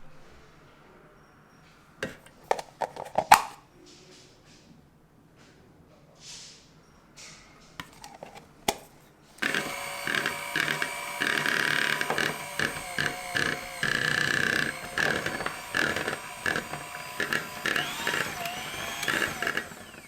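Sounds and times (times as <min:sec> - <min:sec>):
small electric motor whining: 0:09.4 - 0:20.0.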